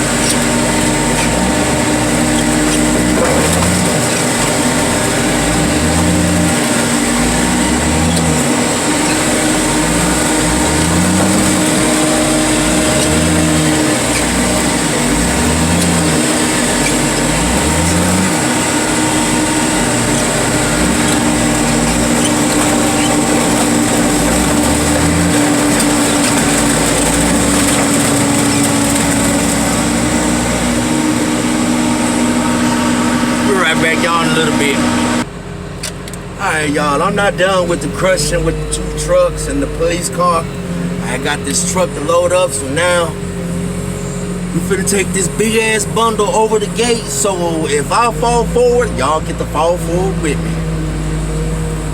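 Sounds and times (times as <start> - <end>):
hydraulic machine pulsing hum: 0.0 - 51.9.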